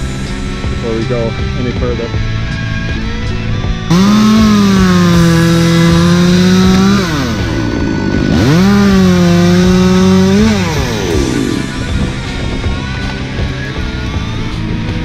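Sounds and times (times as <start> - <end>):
faint music: 0.0 - 15.0
chainsaw revving: 3.9 - 12.1.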